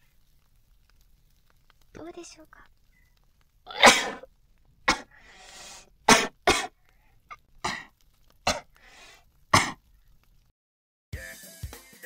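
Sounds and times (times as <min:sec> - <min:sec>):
breathy intakes: 0:02.6 - 0:10.3
person coughing: 0:03.7 - 0:04.3, 0:04.9 - 0:05.1, 0:06.1 - 0:06.7, 0:07.6 - 0:07.9, 0:08.5 - 0:08.7, 0:09.6 - 0:09.8.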